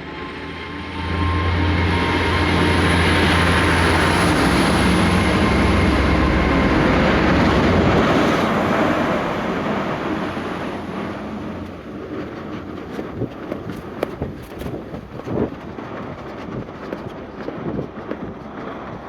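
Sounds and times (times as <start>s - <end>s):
low drone: 0.0s - 14.3s
train rushing past: 0.0s - 19.0s.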